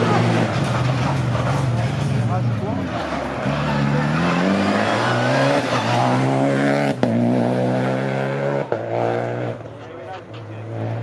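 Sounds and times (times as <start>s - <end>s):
car engine accelerating hard: 0.0s - 9.7s.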